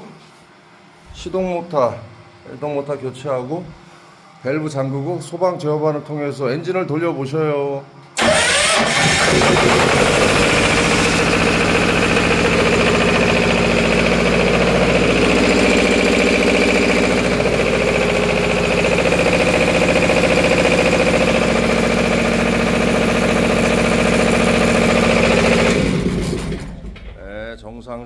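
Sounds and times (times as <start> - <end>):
pump engine starting and running: 8.2 - 27.2.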